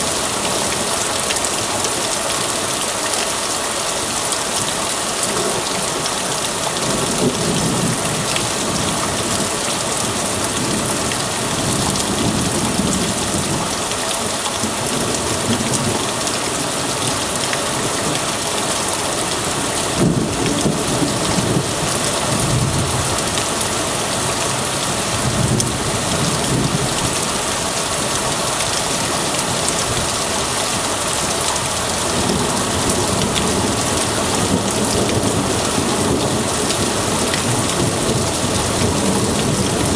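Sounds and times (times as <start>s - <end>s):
heavy rain hissing: 0.0s - 39.9s
thunder rumbling: 19.5s - 27.7s.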